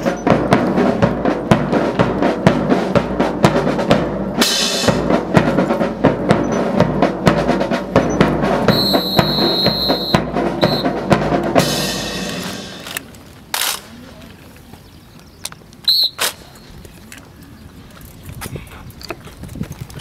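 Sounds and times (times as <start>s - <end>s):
marching snare and bass drums: 0.0s - 13.0s.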